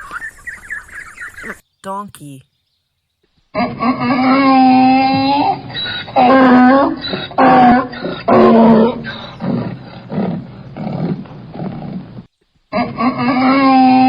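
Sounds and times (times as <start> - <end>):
donkey braying: 3.6 - 14.0.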